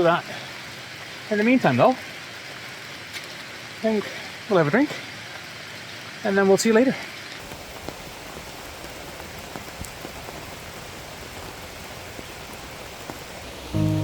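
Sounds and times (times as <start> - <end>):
steady rain falling: 0.0 - 14.0
single raindrops: 7.4 - 14.0
music: 13.6 - 14.0.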